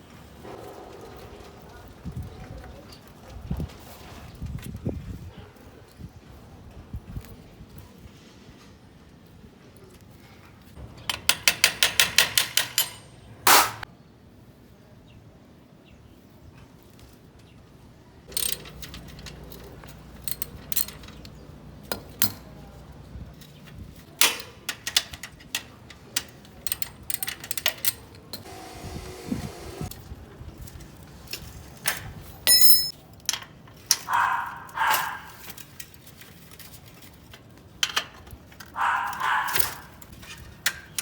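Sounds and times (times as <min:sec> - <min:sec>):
ratchet clicking: 0:18.3 - 0:21.3.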